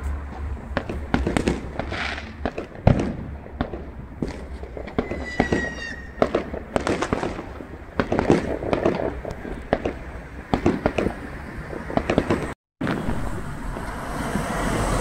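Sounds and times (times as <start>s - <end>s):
fireworks bangs and crackles: 0.2s - 14.5s
firework whistling: 1.2s - 2.6s, 4.2s - 10.0s.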